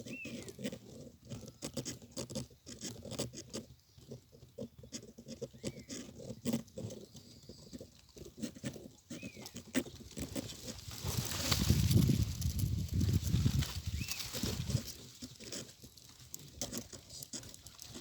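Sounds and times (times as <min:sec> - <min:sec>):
small bird chirps: 0:00.0 - 0:00.8, 0:01.4 - 0:10.7, 0:13.7 - 0:14.6.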